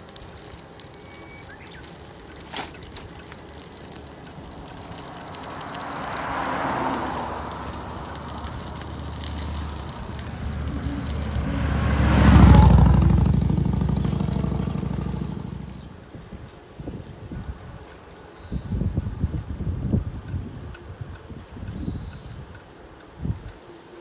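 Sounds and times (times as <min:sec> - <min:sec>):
vehicle passing by: 0:02.5 - 0:16.1.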